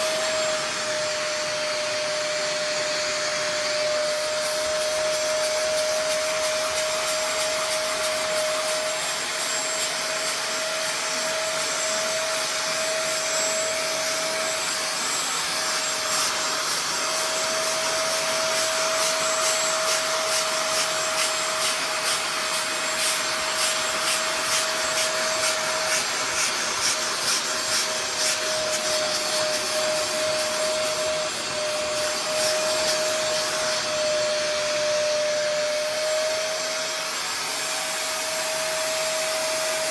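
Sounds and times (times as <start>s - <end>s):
carpet cleaner motor whine: 0.0s - 39.9s
rushing suction noise: 0.0s - 39.9s.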